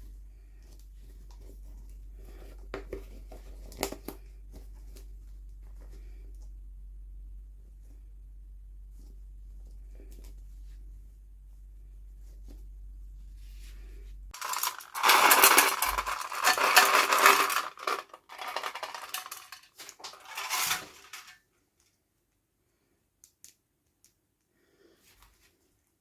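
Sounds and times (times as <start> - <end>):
plastic packaging crackling: 14.4 - 21.4.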